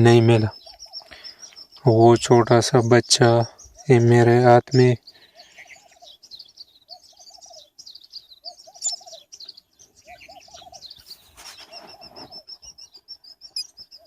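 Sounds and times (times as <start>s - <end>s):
high-pitched bird chirping: 0.0s - 14.0s
bird hooting: 6.9s - 9.4s, 10.0s - 12.9s
short rustle: 11.1s - 12.4s.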